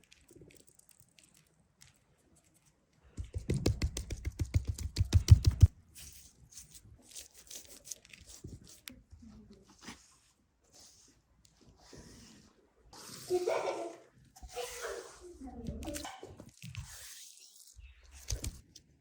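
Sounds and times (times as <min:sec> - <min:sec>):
crackling and tearing by hand: 0:06.6 - 0:09.0.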